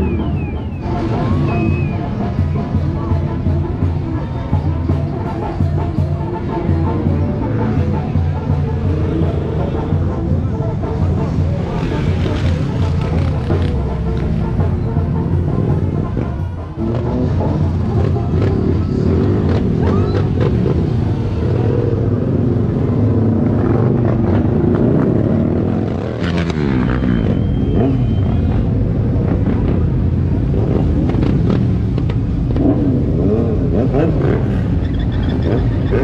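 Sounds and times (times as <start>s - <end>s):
motorcycles revving past: 11.1s - 36.0s.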